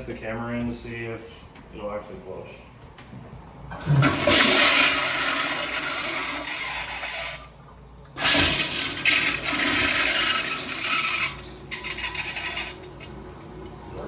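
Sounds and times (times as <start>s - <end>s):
toilet flushing: 3.7s - 14.0s.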